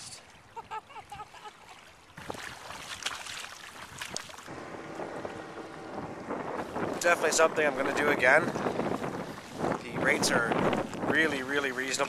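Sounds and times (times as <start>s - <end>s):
water splashing along kayak hull: 0.0s - 12.0s
wind on microphone: 3.9s - 12.0s.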